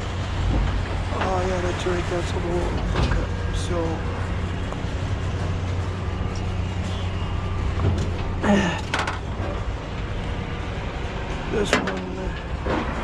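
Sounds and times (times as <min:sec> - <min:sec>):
engine idling: 0:00.0 - 0:13.0
clatter of knocks: 0:07.8 - 0:09.3.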